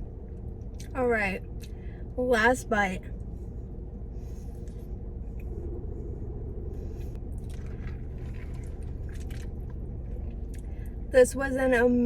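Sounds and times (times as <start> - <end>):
steady low hum: 0.0 - 12.0
person chewing food: 7.2 - 10.8.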